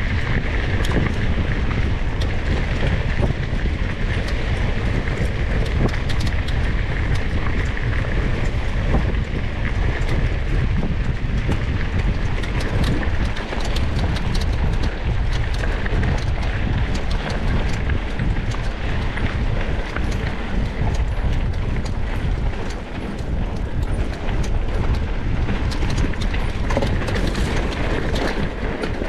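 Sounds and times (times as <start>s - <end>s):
sharp clicks and ticks: 0.0s - 29.0s
wind buffeting microphone: 0.0s - 29.0s.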